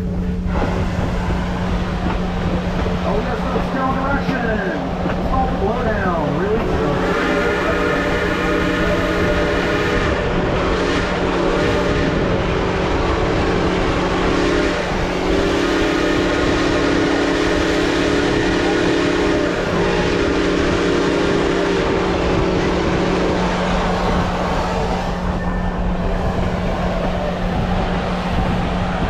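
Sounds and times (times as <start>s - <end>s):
train running rumble: 0.0s - 29.0s
steam locomotive whistle blasts: 6.9s - 12.4s, 14.1s - 25.7s.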